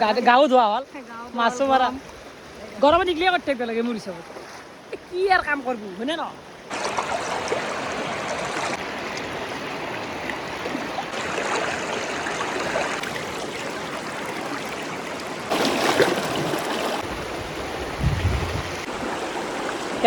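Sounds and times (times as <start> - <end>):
stream water flowing: 0.0 - 20.0.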